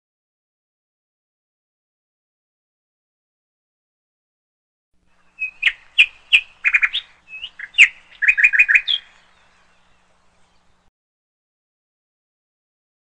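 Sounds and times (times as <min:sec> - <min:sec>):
bird chirping: 0:05.1 - 0:10.9.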